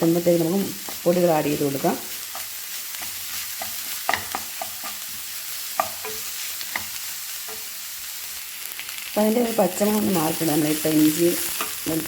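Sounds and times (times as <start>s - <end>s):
food sizzling in oil: 0.0s - 12.0s
spoon scraping and tapping pan: 2.3s - 7.8s.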